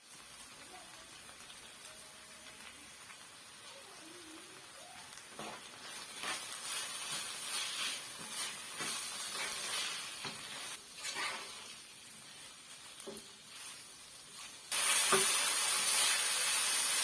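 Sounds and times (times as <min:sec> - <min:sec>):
food sizzling in oil: 0:00.0 - 0:17.0
utensil scraping a pan: 0:05.4 - 0:11.8.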